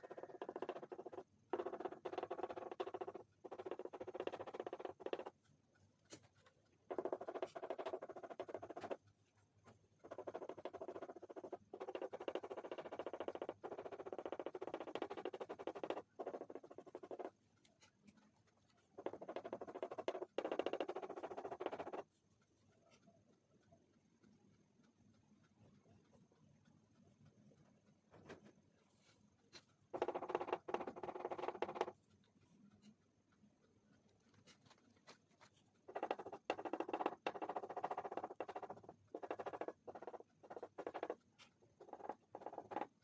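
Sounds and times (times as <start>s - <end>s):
oil pastel scribbling on paper: 10.0s - 17.3s, 18.8s - 22.2s, 34.4s - 41.2s.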